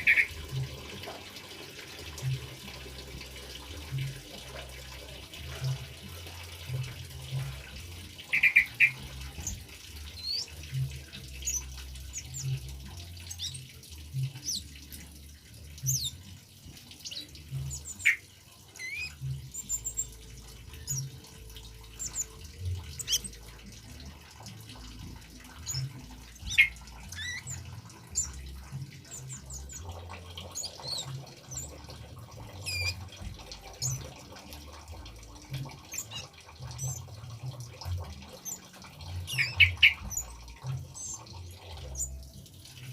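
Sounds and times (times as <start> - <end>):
bird chirping and whistling: 0.0 - 0.3, 8.2 - 14.8, 15.8 - 16.3, 17.0 - 23.6, 24.7 - 34.1, 35.9 - 37.1, 38.3 - 42.2
trickling water: 0.0 - 42.9.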